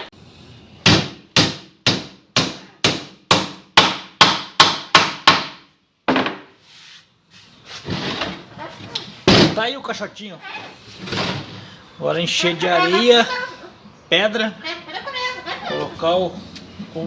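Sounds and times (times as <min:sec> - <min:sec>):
hammer striking nails into wood: 0:00.8 - 0:05.6.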